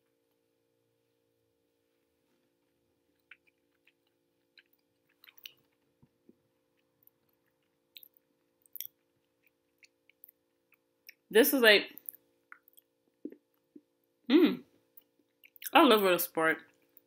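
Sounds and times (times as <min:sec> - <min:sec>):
mouth chewing hard chocolate: 0:03.1 - 0:11.2.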